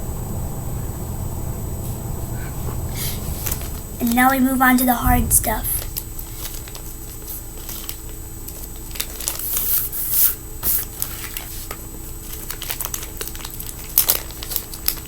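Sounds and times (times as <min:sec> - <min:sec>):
plastic packaging crinkling and tearing: 0:06.4 - 0:15.0.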